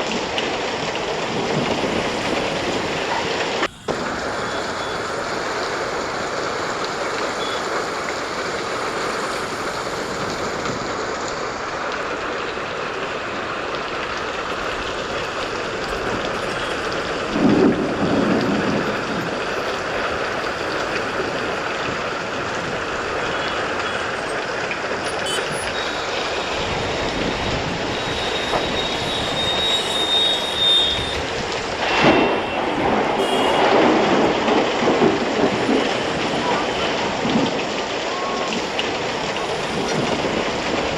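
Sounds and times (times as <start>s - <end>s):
heavy rain falling: 0.0s - 40.9s
tyres hissing on wet road: 0.0s - 40.9s
thin high whine: 27.8s - 33.8s.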